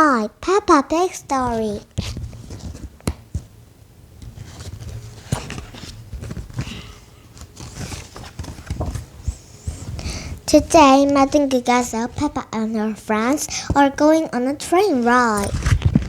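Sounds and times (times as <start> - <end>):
faint rustles: 4.4 - 11.4.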